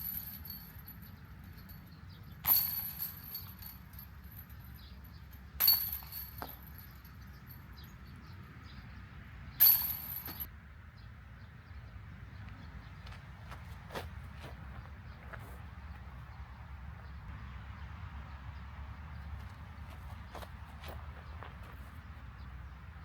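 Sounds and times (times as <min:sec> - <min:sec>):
golf discs striking metal chains: 0:00.0 - 0:08.4, 0:09.6 - 0:10.5.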